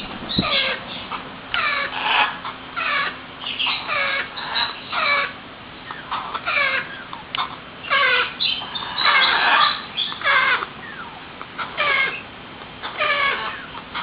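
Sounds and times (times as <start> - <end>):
parrots squawking: 0.0 - 14.0.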